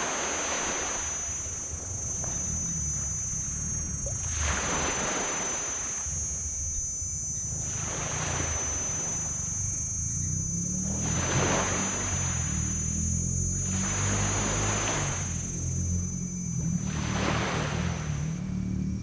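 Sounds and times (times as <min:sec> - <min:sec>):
waves washing onto sand: 0:00.0 - 0:01.1
high-pitched buzz: 0:00.0 - 0:19.0
low engine drone: 0:00.0 - 0:19.0.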